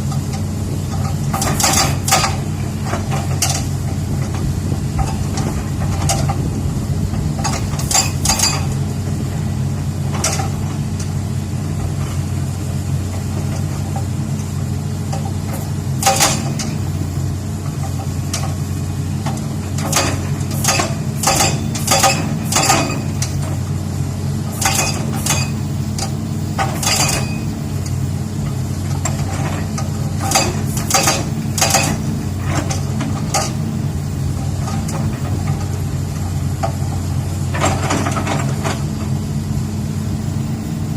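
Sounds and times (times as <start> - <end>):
excavator diesel engine running: 0.0 - 40.9
metallic clanks on rock: 0.9 - 3.7, 7.4 - 8.8, 15.1 - 16.8, 19.2 - 23.5, 24.5 - 27.6, 29.0 - 33.6.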